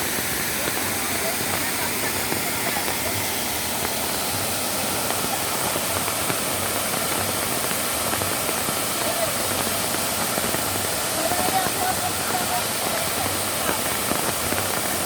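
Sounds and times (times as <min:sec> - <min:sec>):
falling water: 0:00.0 - 0:15.0.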